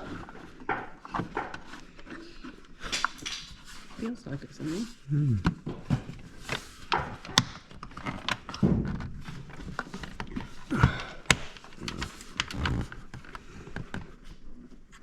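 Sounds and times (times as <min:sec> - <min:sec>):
knocks and clunks of car parts: 0:06.9 - 0:11.6.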